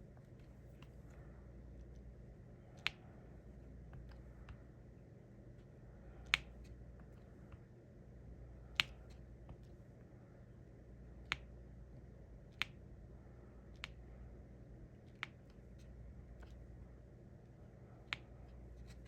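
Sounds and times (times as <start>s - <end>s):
plastic pen clicks and taps: 2.8s - 3.1s, 6.2s - 7.2s, 8.7s - 9.7s, 11.2s - 11.5s, 12.5s - 12.8s, 13.7s - 14.0s.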